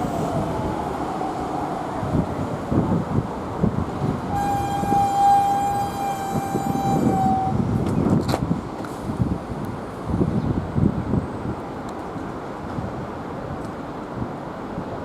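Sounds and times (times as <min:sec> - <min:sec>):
train rumbling on track: 0:00.0 - 0:15.0
train horn: 0:04.3 - 0:07.7.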